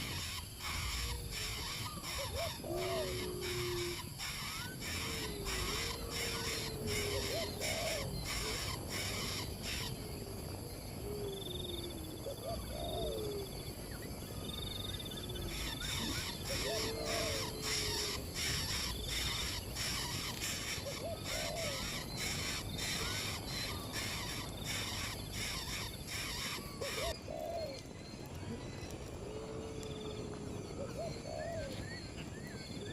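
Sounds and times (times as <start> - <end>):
birds calling: 0.0 - 10.1, 15.2 - 29.2.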